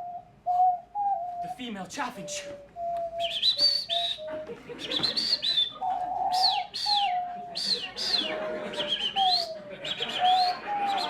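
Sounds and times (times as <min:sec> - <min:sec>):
person whistling high chirps: 0:00.0 - 0:11.0
person making cooing call: 0:02.2 - 0:11.0.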